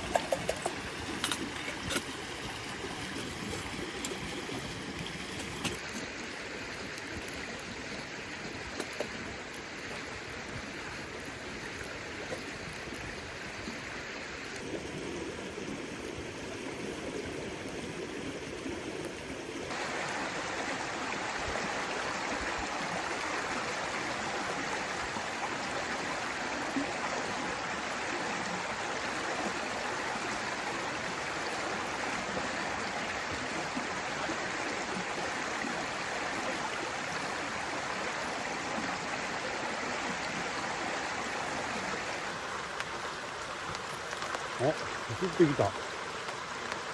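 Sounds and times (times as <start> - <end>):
steady rain falling: 19.7 - 46.9.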